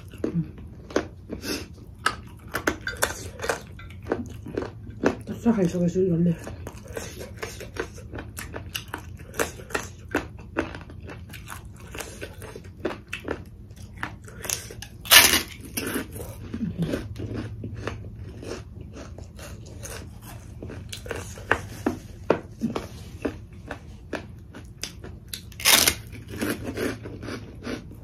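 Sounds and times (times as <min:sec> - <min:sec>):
crisp snack crunching: 0:06.7 - 0:21.6, 0:23.2 - 0:27.9.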